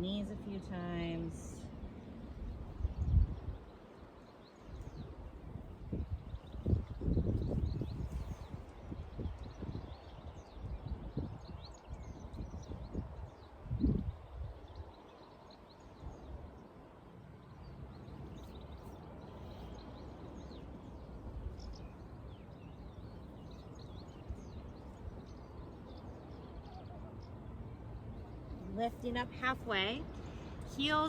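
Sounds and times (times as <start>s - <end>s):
faint bird chirps: 18.0s - 28.9s.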